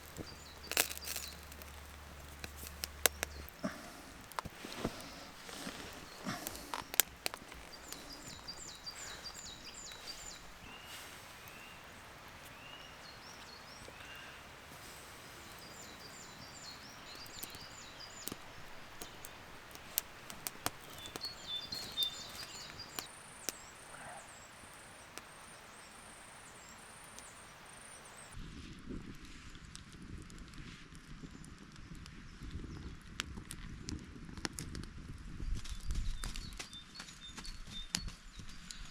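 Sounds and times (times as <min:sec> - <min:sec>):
birds chirping: 0:00.0 - 0:28.4.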